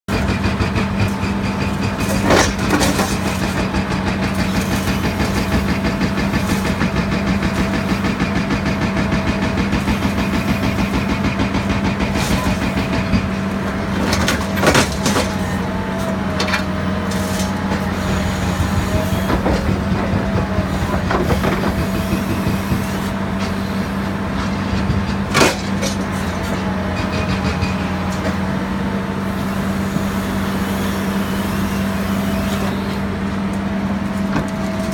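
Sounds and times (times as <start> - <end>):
excavator engine hum: 0.1 - 34.9
hydraulic whine: 0.1 - 34.9.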